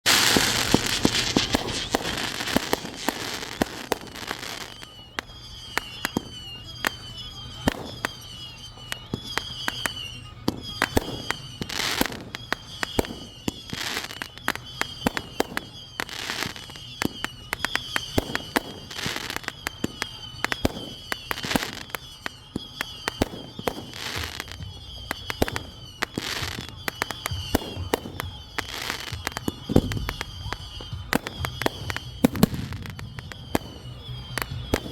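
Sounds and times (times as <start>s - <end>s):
fireworks crackling and booming: 0.0s - 34.9s
high wavering chirp: 0.2s - 34.9s.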